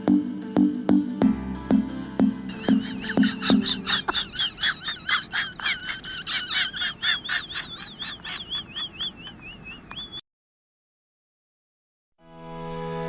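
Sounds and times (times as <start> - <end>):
wavering whistled notes: 2.5 - 4.6
rapid high-pitched chirping: 2.5 - 10.2.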